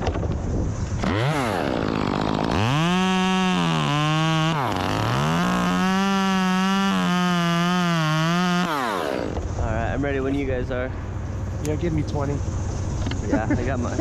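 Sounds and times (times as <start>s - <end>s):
chainsaw cutting wood: 0.8s - 9.6s.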